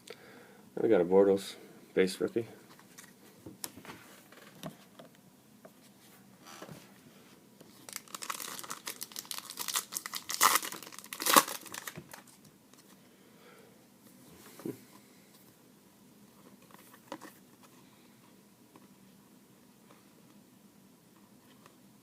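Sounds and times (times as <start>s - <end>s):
wrapper crinkling and tearing: 7.7s - 12.4s.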